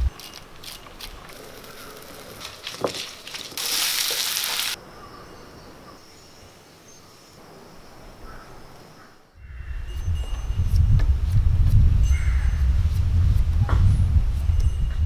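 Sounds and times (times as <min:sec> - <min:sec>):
papaya sizzling in hot oil: 0:03.4 - 0:04.8.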